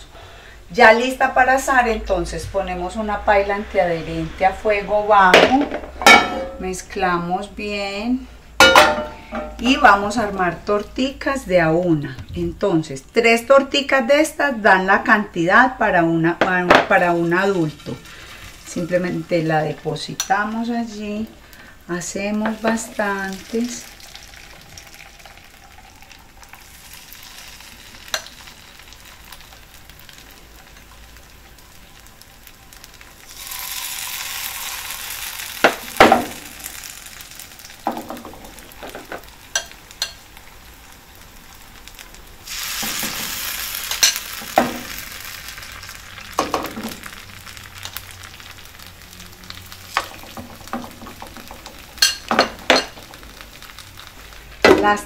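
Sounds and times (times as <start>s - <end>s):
metal spoon tapping bowl and pan: 5.4s - 6.6s, 8.6s - 9.7s, 28.1s - 28.3s, 37.9s - 40.2s, 43.9s - 44.9s, 49.9s - 53.1s
batter sizzling in hot oil: 16.6s - 55.0s.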